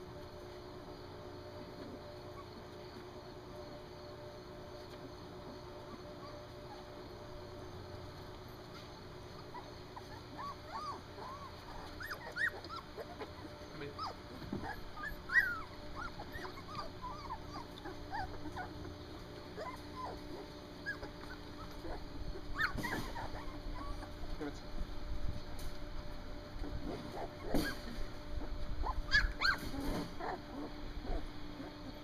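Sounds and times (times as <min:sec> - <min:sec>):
puppies whimpering and squeaking: 0:05.4 - 0:07.0, 0:08.6 - 0:24.6, 0:26.6 - 0:32.0.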